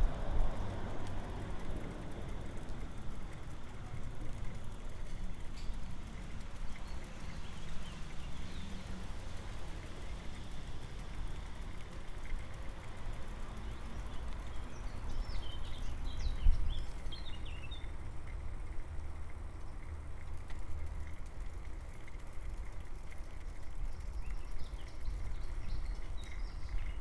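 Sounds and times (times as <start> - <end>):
bicycle ride rumble: 0.0 - 27.0
small birds chirping: 5.4 - 10.1, 12.6 - 18.0, 22.7 - 27.0.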